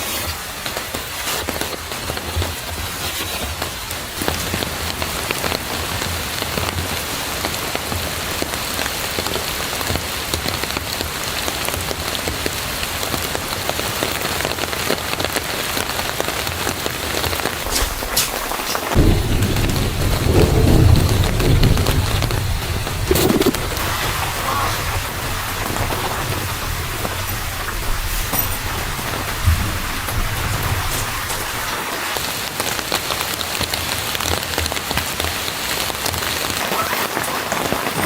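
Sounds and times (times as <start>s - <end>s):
rain pattering: 0.0s - 38.0s
low rumble: 17.7s - 31.6s.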